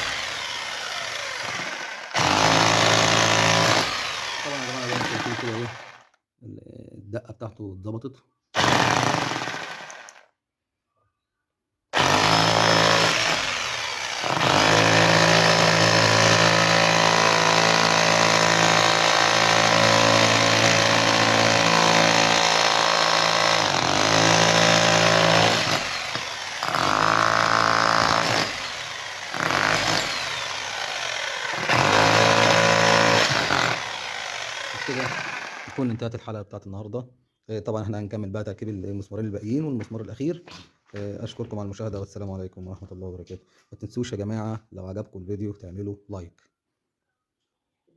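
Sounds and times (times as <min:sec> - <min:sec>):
rotary hammer drill running: 0:00.0 - 0:06.1, 0:08.6 - 0:10.2, 0:12.0 - 0:36.0.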